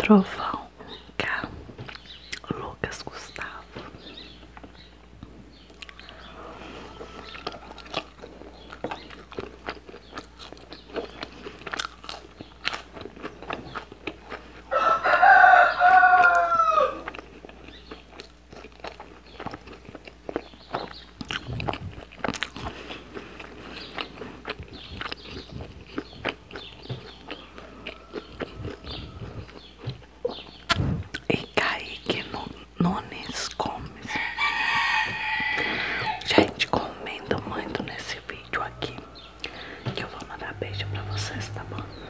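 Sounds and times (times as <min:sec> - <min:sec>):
chewing with wet mouth clicks: 0:01.8 - 0:02.6, 0:05.5 - 0:06.3, 0:07.2 - 0:14.7, 0:16.2 - 0:32.2
rooster crowing: 0:05.9 - 0:07.8, 0:14.7 - 0:17.2, 0:27.2 - 0:29.6, 0:34.1 - 0:36.3.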